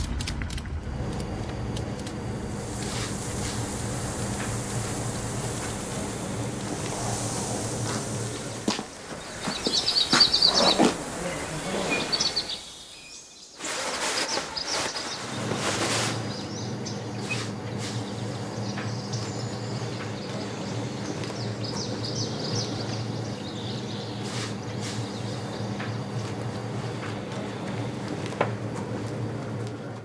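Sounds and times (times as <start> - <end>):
loud rush of noise: 0.0 - 13.0
steady low hum: 0.0 - 13.5, 14.4 - 30.0
ambient noise: 0.0 - 30.0
small birds chirping: 2.6 - 28.0.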